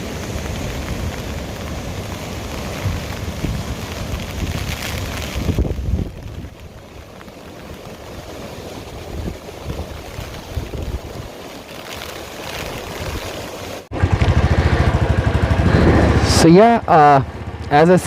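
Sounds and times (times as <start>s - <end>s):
wind rushing: 0.0s - 6.8s, 12.3s - 16.6s
water noise: 0.0s - 18.0s.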